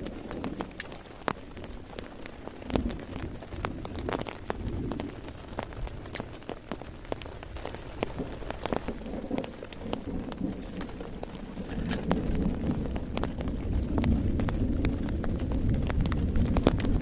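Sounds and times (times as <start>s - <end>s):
heavy rain falling: 0.0s - 17.0s
raindrop hits: 0.0s - 17.0s.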